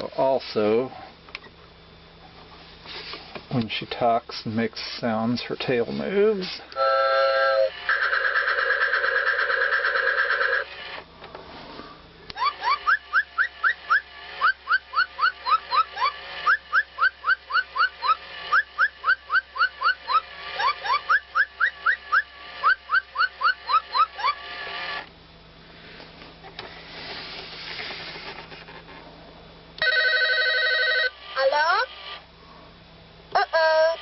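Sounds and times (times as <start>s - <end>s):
toy bird chirps: 7.9s - 10.6s, 12.4s - 24.4s.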